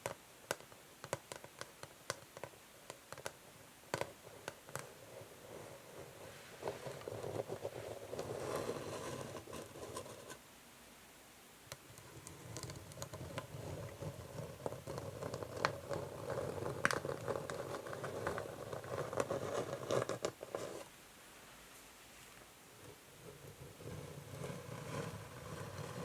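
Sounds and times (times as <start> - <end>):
fingernails scratching on wood: 6.7 - 10.4, 23.3 - 26.0.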